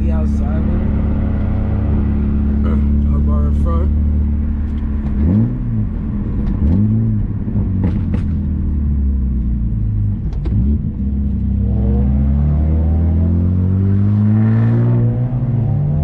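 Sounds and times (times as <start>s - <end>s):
car engine running: 0.0s - 12.4s.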